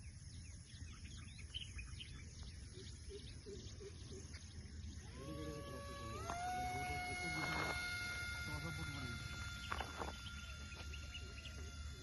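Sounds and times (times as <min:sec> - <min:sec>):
small birds chirping: 0:00.0 - 0:06.4, 0:08.2 - 0:12.0
low outdoor rumble: 0:02.0 - 0:12.0
whining tone rising in pitch: 0:04.6 - 0:12.0.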